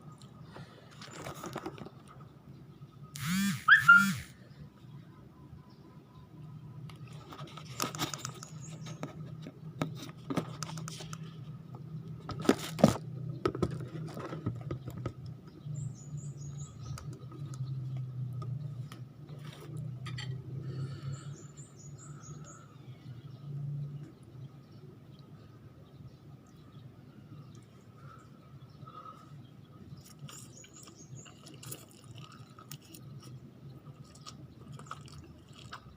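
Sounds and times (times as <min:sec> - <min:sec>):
faint high chirps: 0:03.2 - 0:04.4
person chewing: 0:30.0 - 0:35.9.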